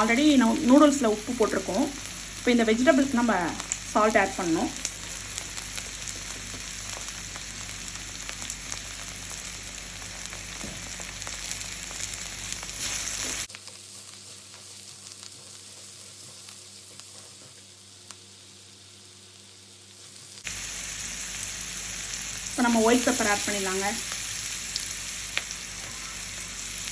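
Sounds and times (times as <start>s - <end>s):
vegetables sizzling in hot oil: 0.0s - 26.9s.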